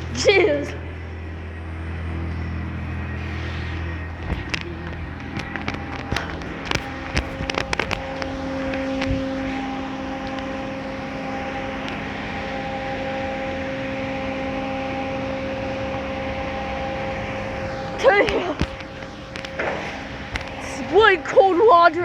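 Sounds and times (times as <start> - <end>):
motor hum: 0.0 - 22.0
clicks: 3.0 - 12.7, 17.5 - 21.4.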